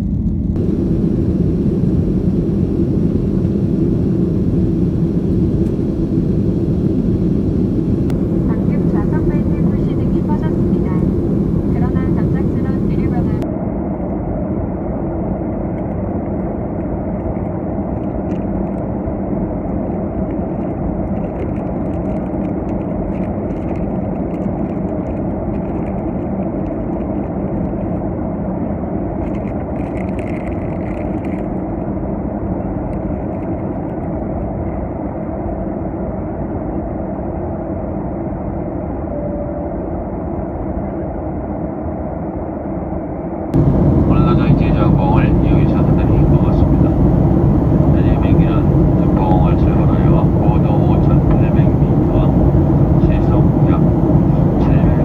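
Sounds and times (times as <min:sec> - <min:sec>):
jet engines roaring: 0:00.0 - 0:55.0
rushing air: 0:00.4 - 0:13.4, 0:43.6 - 0:55.0.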